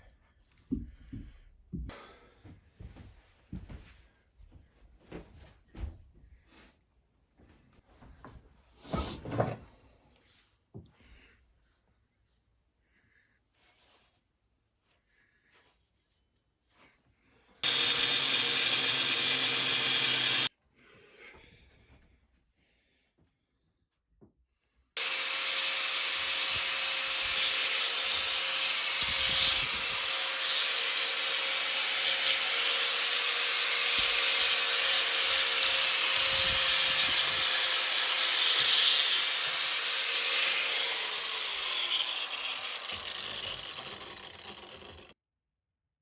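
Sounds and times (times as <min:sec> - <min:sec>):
harsh rasping from the work: 0:17.6 - 0:20.5, 0:25.0 - 0:45.1
power tool motor whine: 0:17.6 - 0:20.5, 0:25.0 - 0:45.1.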